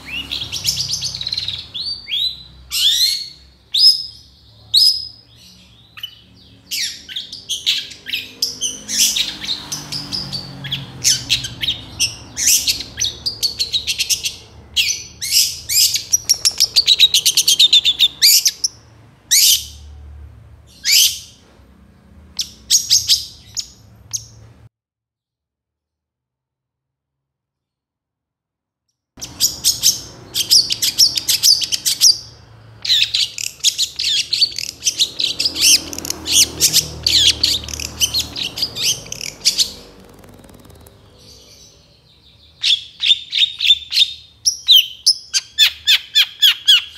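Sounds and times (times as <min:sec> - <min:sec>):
bird singing with trills: 0:00.0 - 0:19.8, 0:29.2 - 0:46.9.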